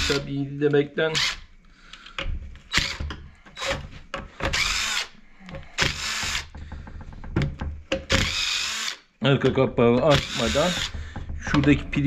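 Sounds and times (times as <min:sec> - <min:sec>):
power drill whirring: 0:01.2 - 0:01.4, 0:02.7 - 0:05.2, 0:05.8 - 0:06.6, 0:08.1 - 0:09.0, 0:10.1 - 0:11.0.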